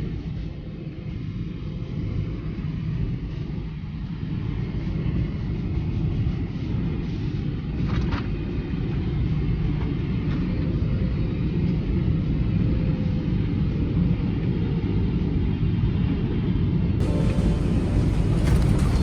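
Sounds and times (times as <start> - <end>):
airplane cabin rumble: 17.0 - 19.0
faint rattle: 17.0 - 19.0.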